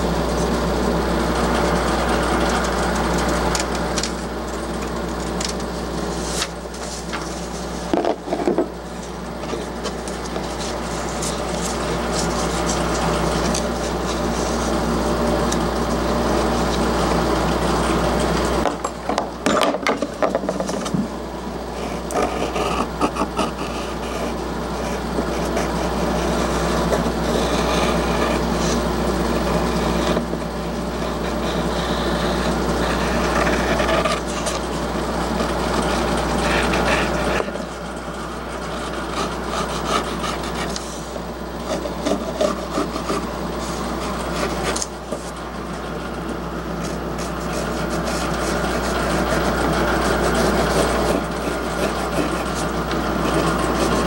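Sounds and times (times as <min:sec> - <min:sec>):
scroll saw motor hum: 0:00.0 - 0:18.7, 0:20.3 - 0:54.0
saw blade rasping in wood: 0:05.3 - 0:15.6, 0:21.7 - 0:54.0.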